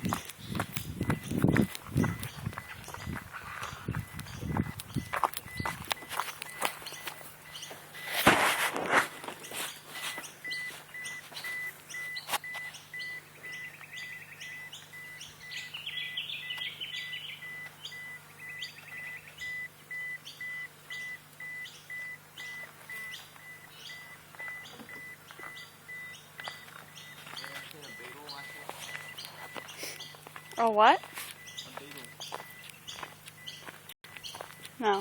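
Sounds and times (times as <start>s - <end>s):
birds chirping: 0.0s - 8.2s, 9.1s - 35.0s
bird trill: 6.5s - 7.8s, 9.4s - 35.0s
pulsing high tone: 10.0s - 35.0s.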